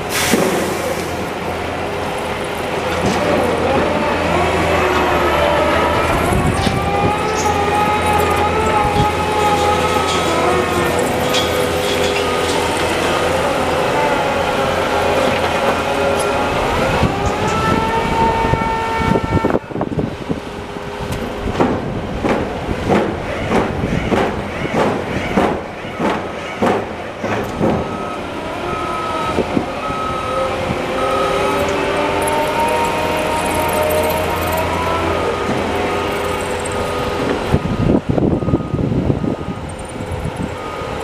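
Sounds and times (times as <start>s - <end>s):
construction machinery engine: 0.0s - 41.0s
heavy knocks: 21.5s - 28.0s.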